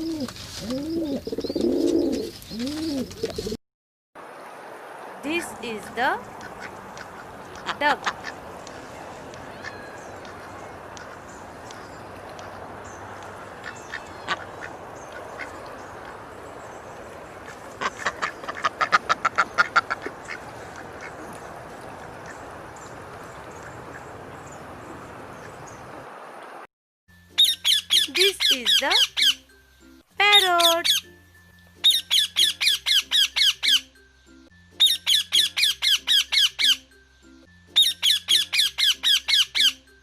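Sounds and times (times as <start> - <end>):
duck quacking: 6.4 - 8.4, 13.6 - 16.2, 17.8 - 21.2.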